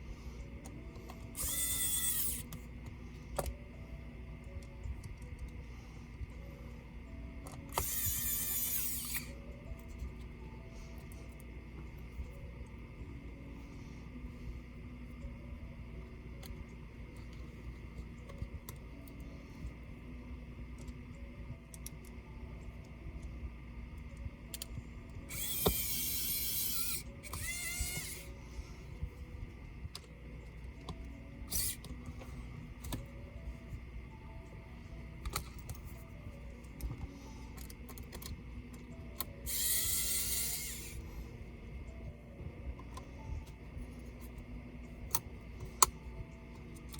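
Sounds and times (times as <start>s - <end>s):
electric screwdriver motor whirring: 1.2s - 2.6s, 7.5s - 9.8s, 25.2s - 28.4s, 31.4s - 32.0s, 39.2s - 41.1s.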